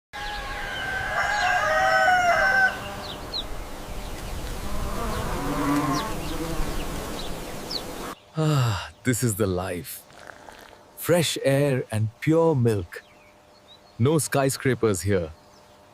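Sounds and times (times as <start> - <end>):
rooster crowing: 0.2 - 3.4, 4.6 - 6.3
insects buzzing: 0.2 - 15.9
lower animal call: 4.6 - 8.6.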